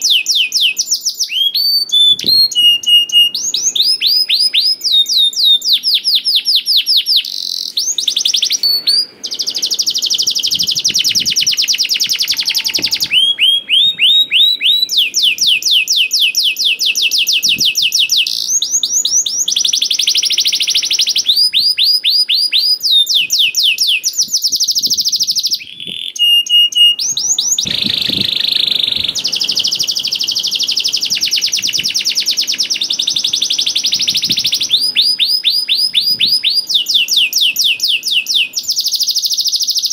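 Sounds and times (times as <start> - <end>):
canary trilling: 0.0 - 39.9.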